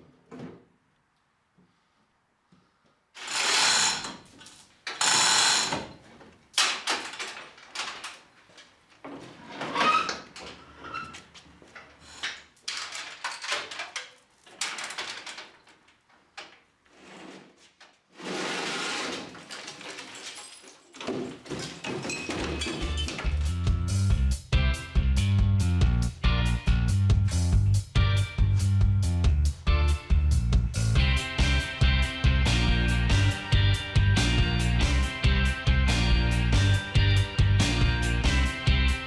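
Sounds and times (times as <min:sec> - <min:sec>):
power tool cutting sheet metal: 0:03.2 - 0:04.2, 0:04.9 - 0:05.9, 0:18.2 - 0:19.3.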